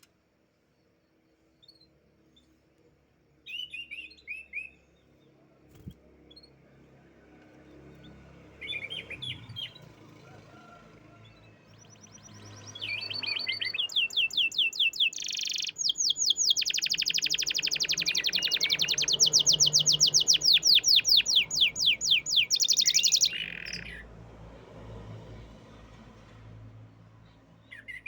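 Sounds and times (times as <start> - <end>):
canary singing trills: 3.4 - 4.9, 8.0 - 10.5, 11.3 - 24.1.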